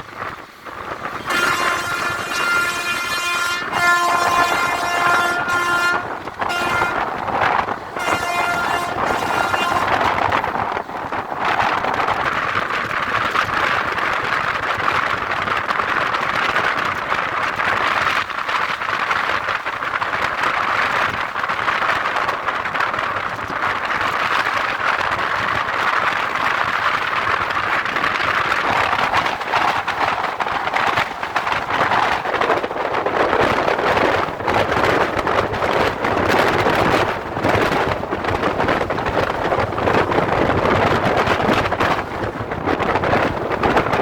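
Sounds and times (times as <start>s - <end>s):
train rushing on track: 0.0s - 44.0s.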